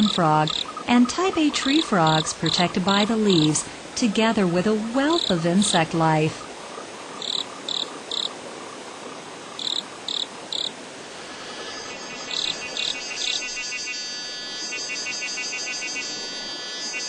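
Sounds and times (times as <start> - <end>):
insects chirping: 0.0 - 4.4, 5.0 - 5.8, 6.4 - 17.0
cicada chorus buzzing: 0.4 - 0.9, 6.4 - 8.4, 9.0 - 17.0.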